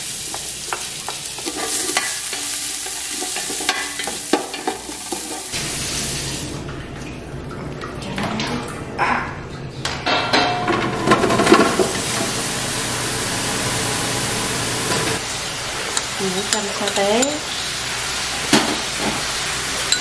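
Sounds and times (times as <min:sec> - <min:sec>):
meat sizzling in a pot: 0:00.0 - 0:06.5, 0:11.2 - 0:20.0.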